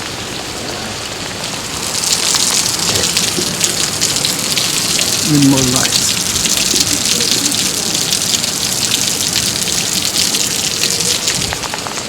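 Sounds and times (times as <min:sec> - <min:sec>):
heavy rain falling: 0:00.0 - 0:12.0
raindrops ticking: 0:00.4 - 0:12.0.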